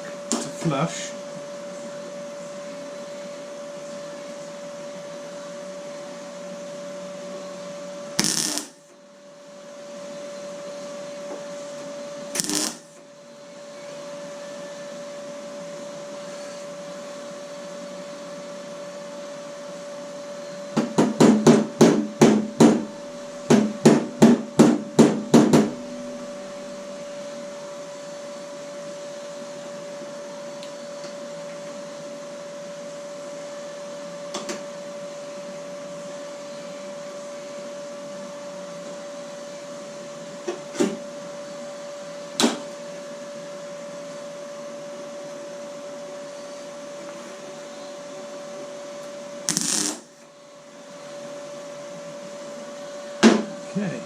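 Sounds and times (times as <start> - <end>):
steady hum: 7.3 - 13.6, 21.5 - 30.2, 49.2 - 51.2.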